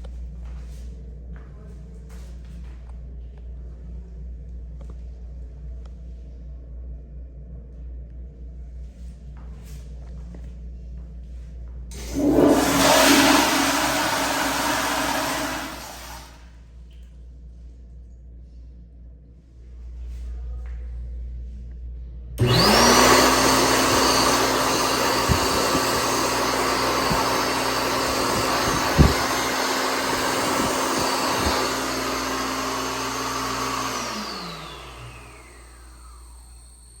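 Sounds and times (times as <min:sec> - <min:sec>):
electric hand dryer running: 0:11.9 - 0:16.4, 0:22.4 - 0:37.0.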